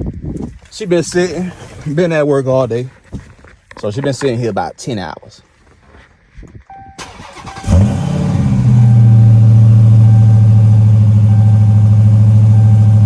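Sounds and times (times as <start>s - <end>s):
engine revving and idling: 7.3s - 13.0s.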